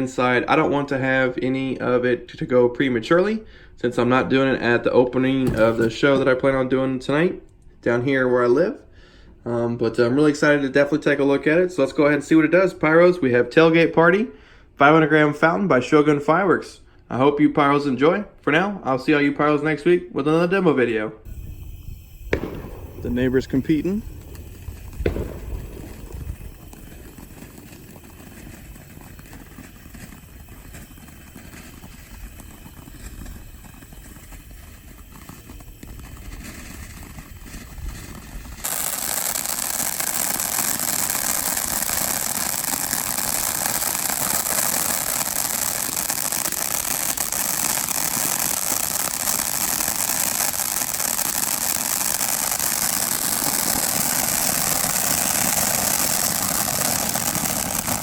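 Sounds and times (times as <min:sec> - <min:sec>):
firework fountain hissing: 0:05.4 - 0:06.0, 0:21.3 - 0:31.0, 0:38.6 - 0:58.0
wind on microphone: 0:21.3 - 0:27.0.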